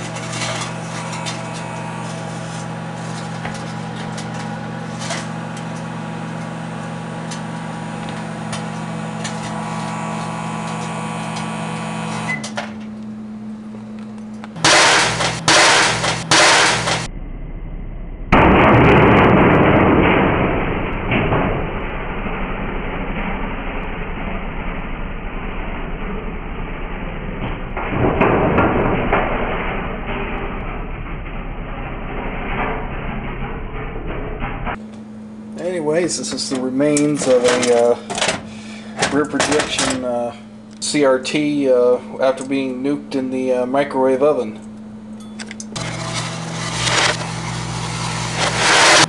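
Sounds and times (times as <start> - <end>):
crackling sparks: 0.0 - 12.3, 14.6 - 17.1, 45.8 - 49.0
microwave oven humming: 0.0 - 49.0
loud bangs: 14.6 - 17.1, 18.3 - 23.6
loud noisy rush: 48.0 - 49.0.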